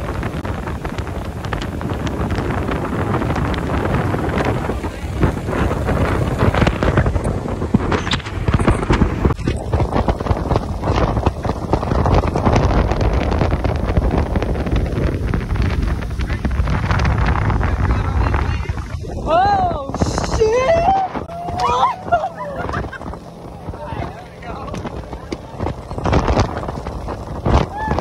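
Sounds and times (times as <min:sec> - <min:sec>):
boat engine rumble: 0:00.0 - 0:28.0
wind buffeting microphone: 0:00.0 - 0:28.0.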